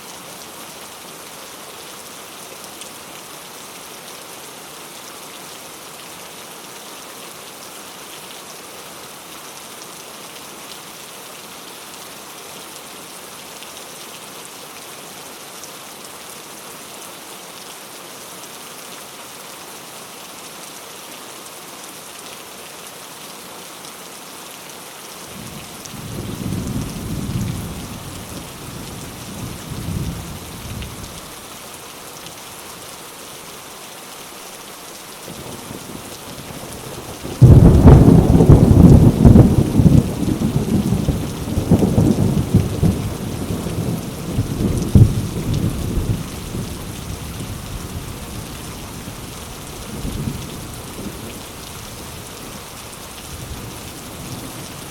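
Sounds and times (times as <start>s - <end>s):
heavy rain on leaves: 0.0s - 54.9s
thunder rumbling: 37.4s - 46.7s.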